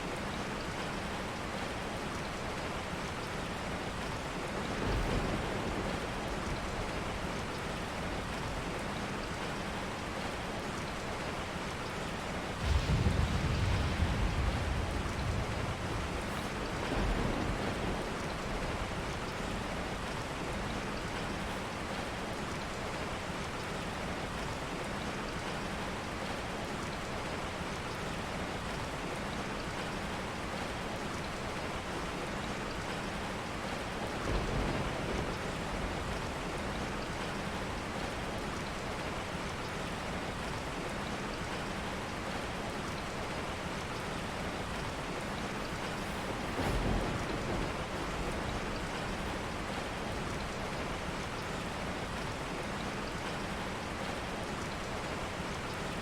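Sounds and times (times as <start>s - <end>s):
steady rain: 0.0s - 56.0s
thunder rumbles: 4.2s - 9.1s, 12.2s - 20.8s, 34.1s - 38.3s, 44.3s - 52.3s.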